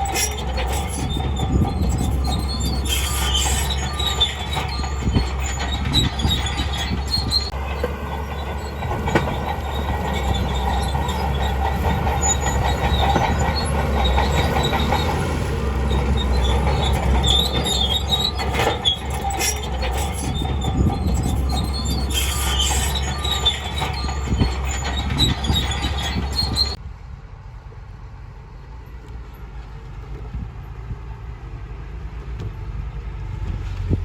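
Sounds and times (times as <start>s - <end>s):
steel tracks squealing and clanking: 0.0s - 26.8s
diesel engine running: 0.0s - 34.0s.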